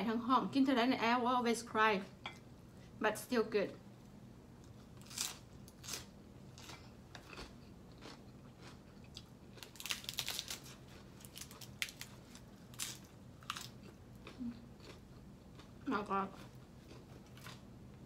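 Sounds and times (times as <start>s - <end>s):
person chewing crisp food: 4.6s - 18.0s.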